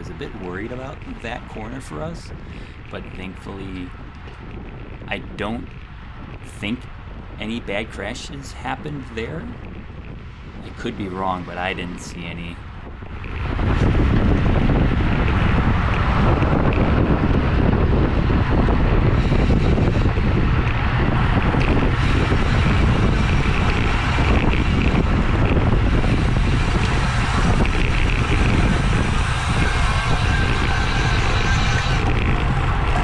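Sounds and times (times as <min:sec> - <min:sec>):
wind rushing over microphone: 0:00.0 - 0:33.0.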